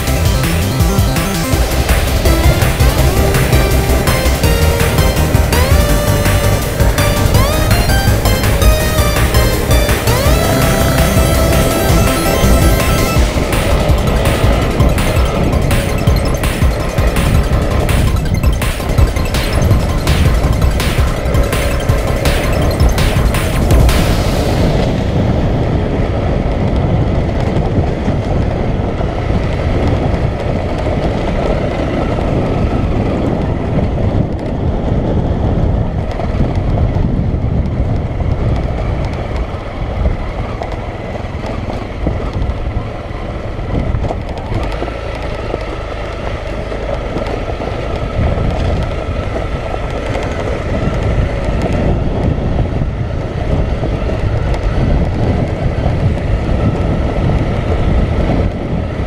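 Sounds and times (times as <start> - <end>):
motorcycle engine running: 0.0 - 59.0
wind on microphone: 23.2 - 59.0.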